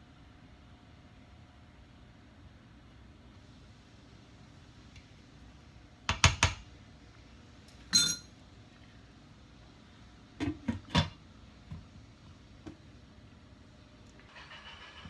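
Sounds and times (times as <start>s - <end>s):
ringing metallic clink: 7.9s - 8.3s
kitchenware knocking: 8.0s - 8.2s.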